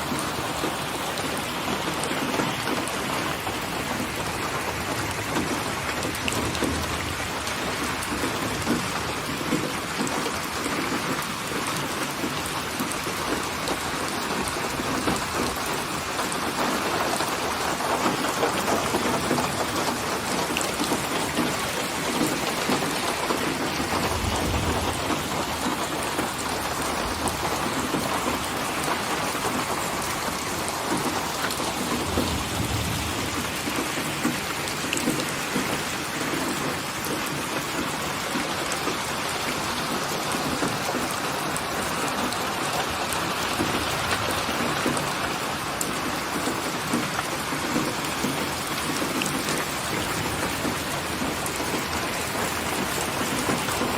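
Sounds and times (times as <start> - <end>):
rain pouring: 0.0 - 53.9
distant thunder rumbling: 23.6 - 28.4, 30.9 - 35.6.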